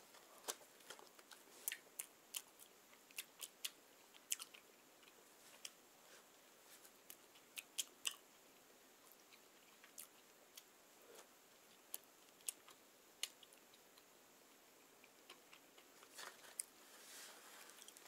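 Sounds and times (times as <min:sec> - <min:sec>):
quiet chewing with mouth clicks: 0:00.8 - 0:05.8, 0:06.8 - 0:16.8.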